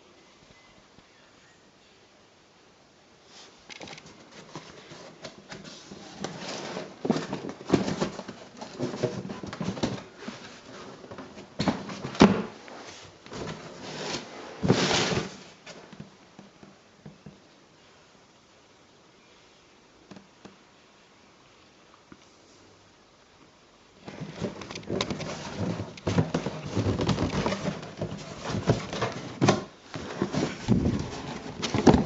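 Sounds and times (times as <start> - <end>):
packaging rustling: 24.0 - 32.0.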